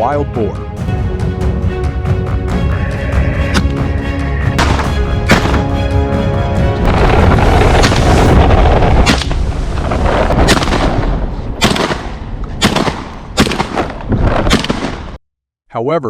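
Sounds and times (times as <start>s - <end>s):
steady low rumble: 0.8s - 13.4s
shotgun shots: 4.6s - 5.7s, 10.4s - 15.2s.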